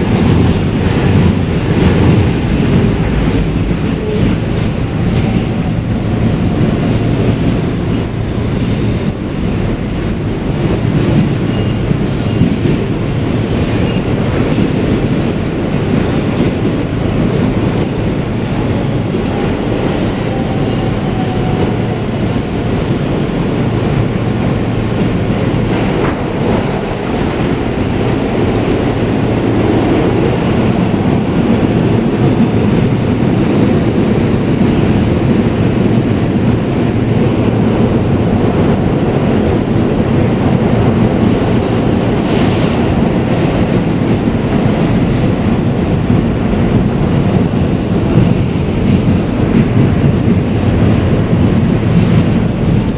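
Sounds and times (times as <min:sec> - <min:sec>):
wheels rumbling on rail: 0:00.0 - 0:52.9
high wheel squeal: 0:18.0 - 0:20.9.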